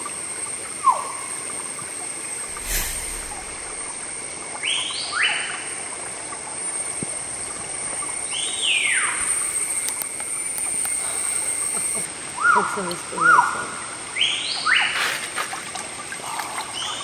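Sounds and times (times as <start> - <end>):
steady high-pitched whine: 2.5 - 4.5.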